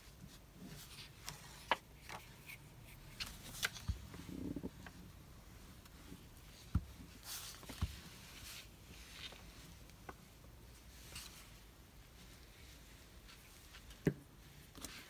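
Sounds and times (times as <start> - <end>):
paper rustling: 0.7 - 4.2.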